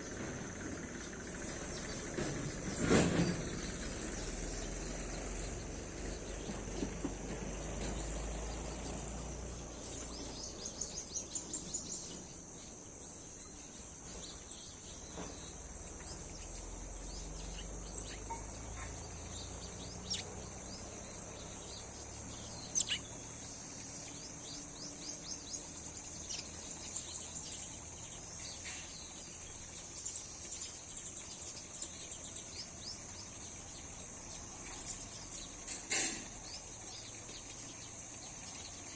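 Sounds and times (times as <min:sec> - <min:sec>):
insects droning: 0:00.0 - 0:38.9
bird chirps: 0:09.7 - 0:38.9.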